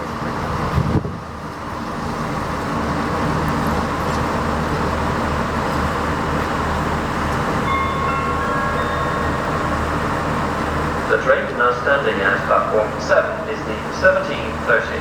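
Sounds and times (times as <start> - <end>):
diesel railcar rumble: 0.0 - 15.0
electronic pa chime: 7.7 - 10.2.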